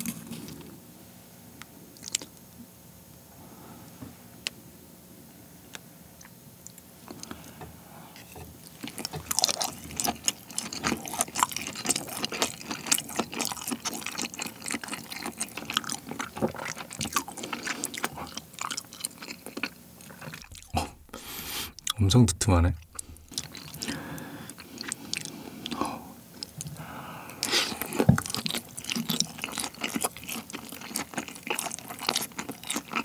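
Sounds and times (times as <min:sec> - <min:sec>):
chewing with mouth clicks: 0:02.0 - 0:02.4, 0:06.2 - 0:07.5, 0:08.2 - 0:22.0, 0:22.8 - 0:33.0.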